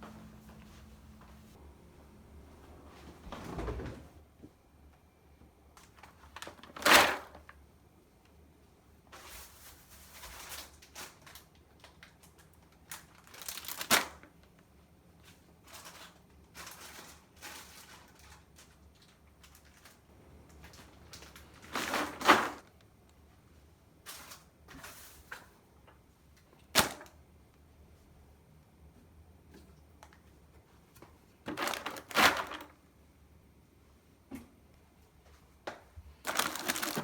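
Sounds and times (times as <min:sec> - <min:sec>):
objects being handled: 0:36.2 - 0:37.0.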